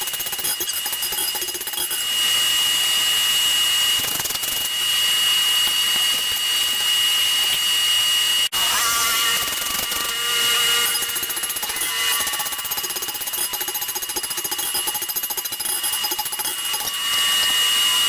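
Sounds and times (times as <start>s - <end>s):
power hammer pounding steel: 8.5s - 18.0s.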